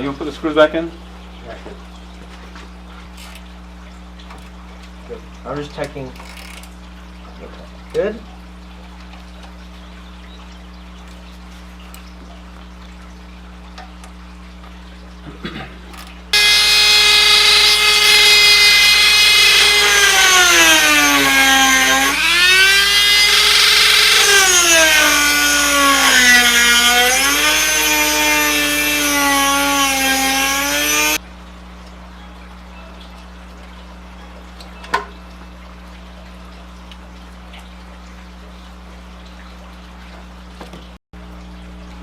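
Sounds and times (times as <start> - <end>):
electric power tool motor whining: 16.4 - 31.2.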